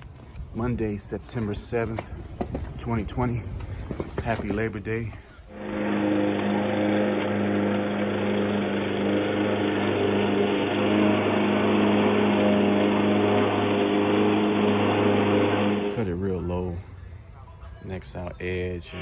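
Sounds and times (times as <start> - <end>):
lawn mower engine cutting grass: 5.6 - 16.4.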